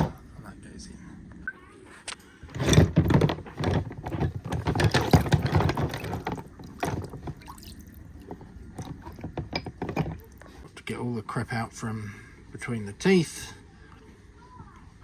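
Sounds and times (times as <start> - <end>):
parts clicking and rattling: 2.5 - 10.7.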